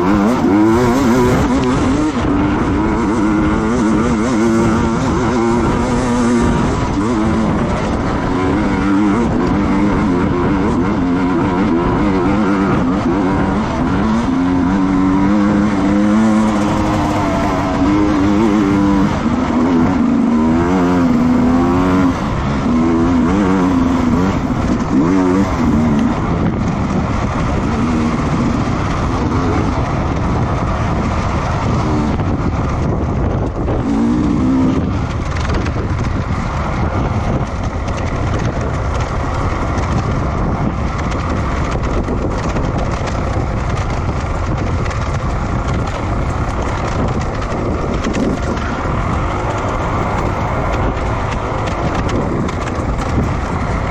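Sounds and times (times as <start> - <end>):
racing motorcycle engines revving: 0.0 - 53.9.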